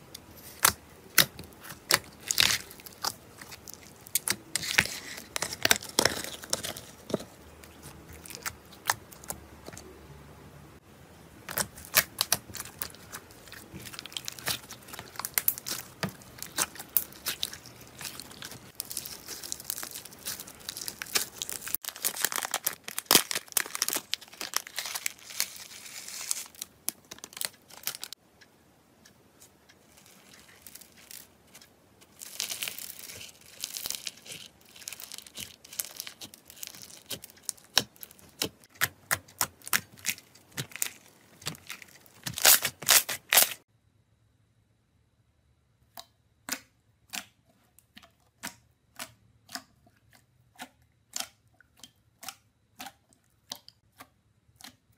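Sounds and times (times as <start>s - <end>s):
slime crackling and popping: 0.4s - 9.8s, 11.5s - 28.2s, 29.8s - 43.6s.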